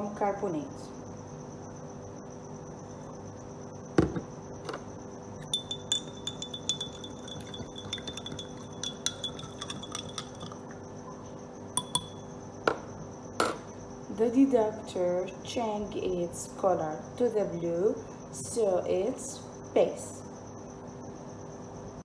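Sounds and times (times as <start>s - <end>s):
faint steady hum: 0.0s - 22.0s
spoon clinking against glass: 5.4s - 10.6s, 11.8s - 12.2s
glass ringing: 5.4s - 10.7s, 11.8s - 12.3s.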